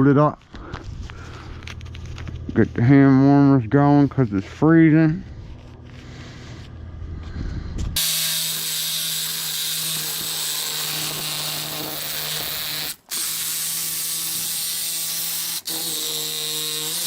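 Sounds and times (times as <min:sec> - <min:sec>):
low hum: 0:00.0 - 0:10.1.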